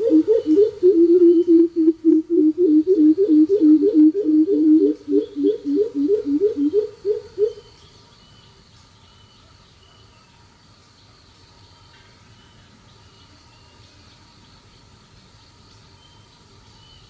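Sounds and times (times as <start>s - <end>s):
bird deep hooting calls: 0.0s - 7.7s.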